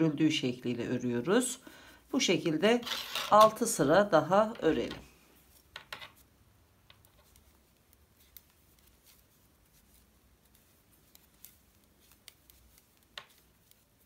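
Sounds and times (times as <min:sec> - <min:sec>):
knitting needles clicking: 0:06.8 - 0:14.0.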